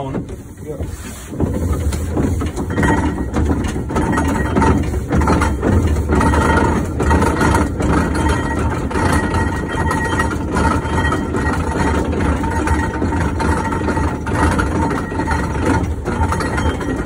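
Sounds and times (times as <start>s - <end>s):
machinery knocking and clanking: 0.0s - 17.0s
steam engine running: 0.0s - 17.0s.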